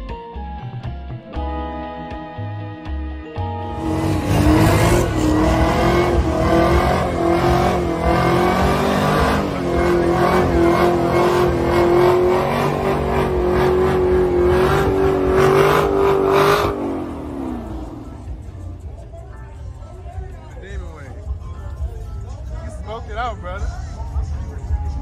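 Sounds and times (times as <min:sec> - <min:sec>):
car engine at high revs: 0:03.6 - 0:18.9.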